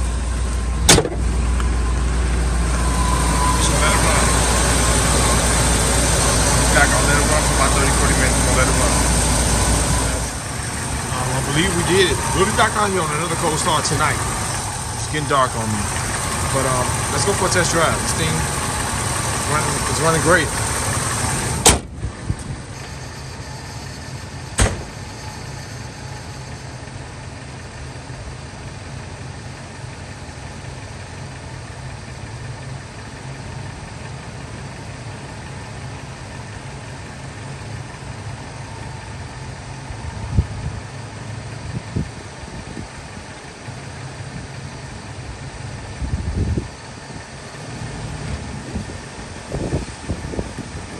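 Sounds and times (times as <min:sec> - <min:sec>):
truck engine idling: 0:00.0 - 0:50.9
dull thumps: 0:00.8 - 0:01.7
sharp knock: 0:00.9 - 0:01.3, 0:24.6 - 0:24.9.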